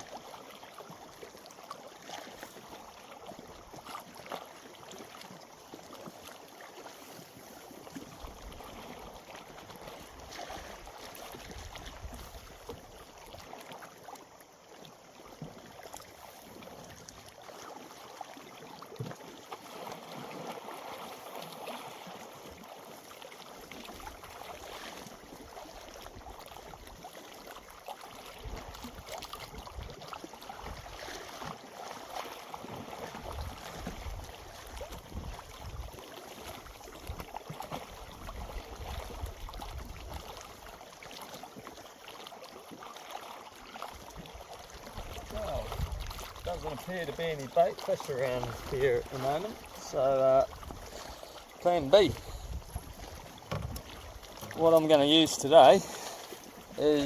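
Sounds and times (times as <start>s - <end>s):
small waves lapping and splashing: 0.0s - 57.0s
wind buffeting microphone: 45.2s - 46.7s, 52.0s - 54.2s.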